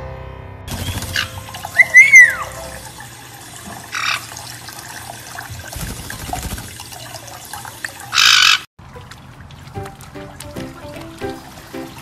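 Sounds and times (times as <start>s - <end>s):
parrot squawking: 1.1s - 2.8s, 8.1s - 8.7s.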